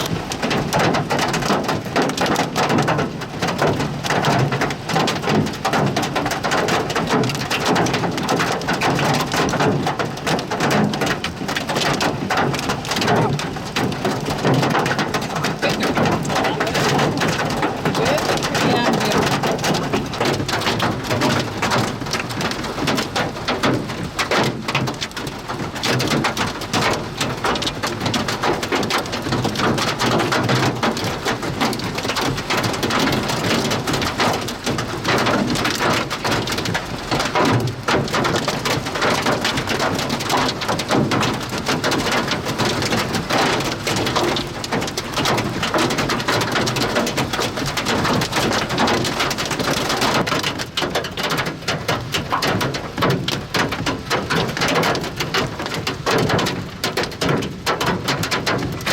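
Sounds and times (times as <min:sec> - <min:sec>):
heavy rain pelting down: 0:00.0 - 0:58.9.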